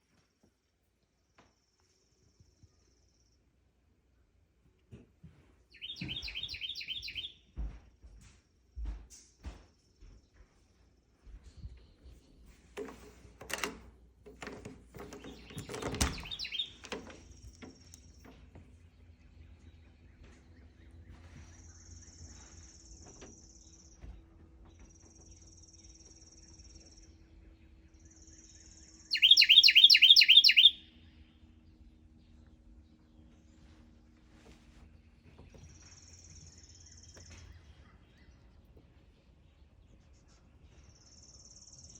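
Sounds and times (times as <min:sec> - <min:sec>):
bird chirping: 0:05.7 - 0:07.4, 0:14.4 - 0:21.0, 0:25.2 - 0:32.3
light knocks and rustles: 0:07.6 - 0:18.9.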